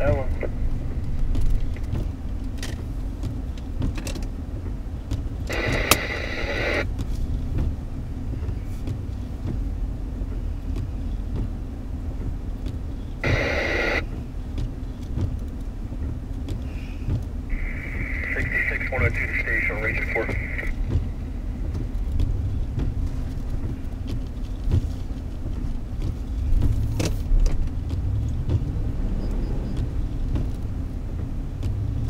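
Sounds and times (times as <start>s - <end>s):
radio static burst: 0.0s - 0.6s, 5.5s - 6.8s, 13.2s - 14.0s, 17.5s - 20.8s
car rumbling through snow: 0.0s - 32.0s.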